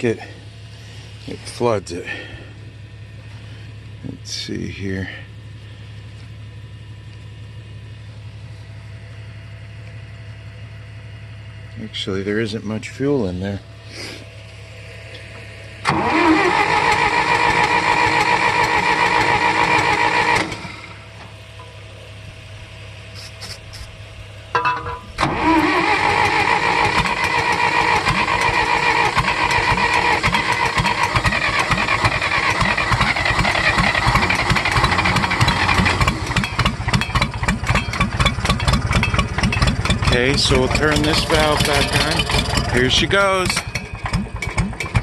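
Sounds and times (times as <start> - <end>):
electric starter cranking engine: 15.2 - 21.3, 25.0 - 45.0.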